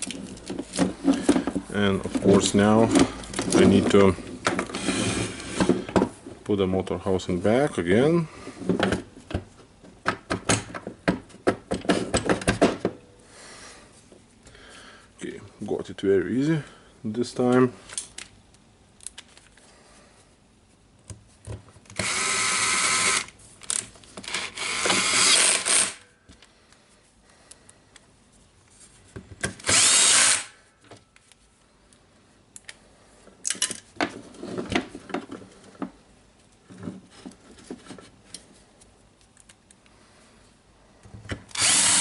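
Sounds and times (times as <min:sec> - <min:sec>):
clicks and knocks of parts: 0:17.5 - 0:19.7, 0:30.8 - 0:39.9
cordless drill driving screws: 0:22.0 - 0:23.3, 0:24.3 - 0:26.0, 0:29.6 - 0:30.5, 0:41.5 - 0:42.0.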